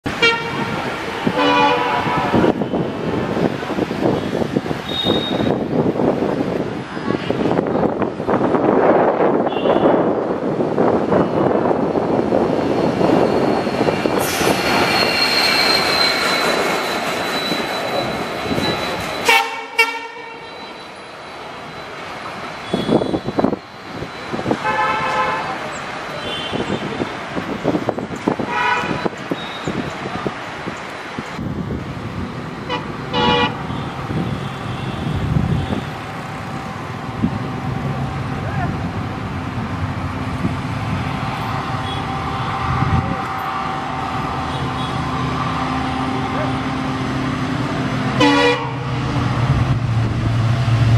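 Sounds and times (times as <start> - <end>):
freight train wheels rumbling on rail: 0.0 - 50.9
train horn toots: 0.2 - 2.5, 19.2 - 20.5, 32.7 - 33.9, 48.2 - 48.9
high wheel squeal: 4.0 - 5.7, 12.0 - 24.6, 28.9 - 30.0.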